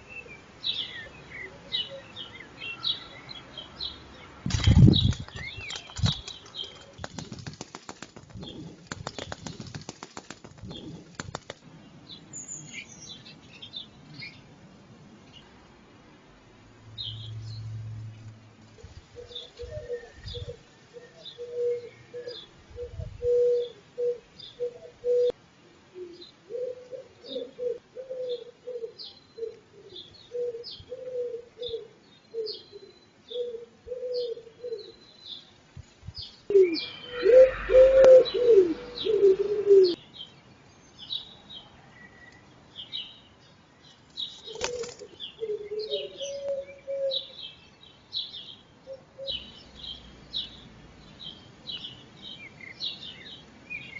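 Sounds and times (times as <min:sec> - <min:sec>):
songbird chirping: 0:00.0 - 0:53.9
wing flapping: 0:04.5 - 0:11.7, 0:44.3 - 0:45.2
wood pigeons calling: 0:04.5 - 0:14.4, 0:18.8 - 0:25.4, 0:26.0 - 0:35.1, 0:36.2 - 0:40.0, 0:44.1 - 0:50.6.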